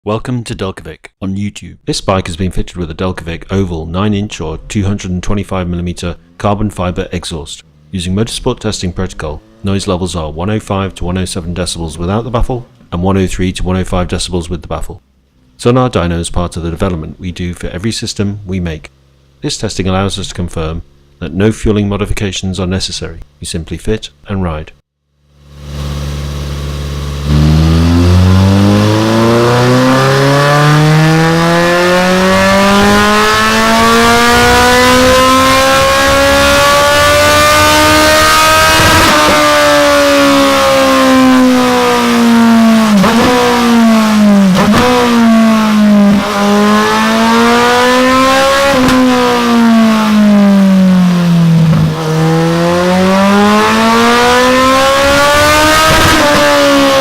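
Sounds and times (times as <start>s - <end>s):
motorcycle engine revving: 6.0s - 12.9s, 25.1s - 57.0s.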